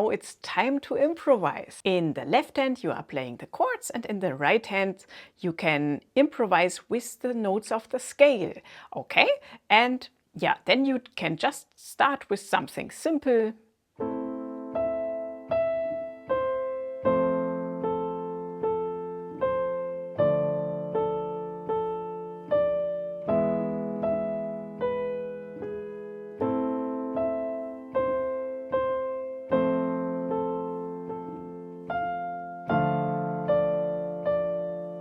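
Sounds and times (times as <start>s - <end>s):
piano playing: 14.0s - 35.0s.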